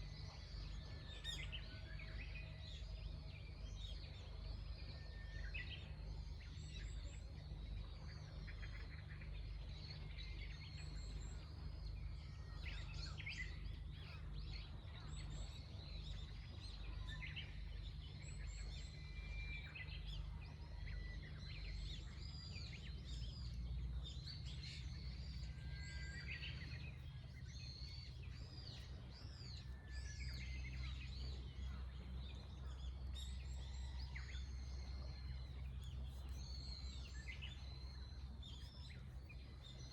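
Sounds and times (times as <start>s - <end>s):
small birds chirping: 0.0s - 39.9s
steady low rumble: 0.0s - 39.9s.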